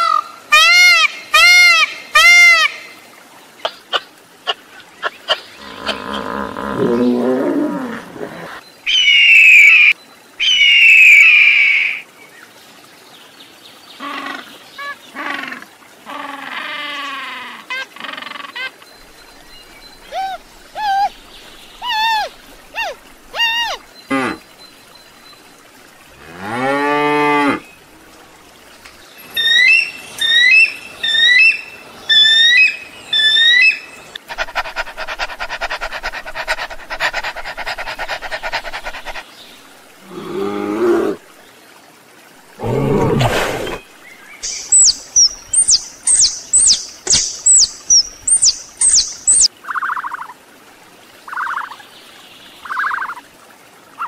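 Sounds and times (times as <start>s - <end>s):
high chirps: 44.4s - 49.5s.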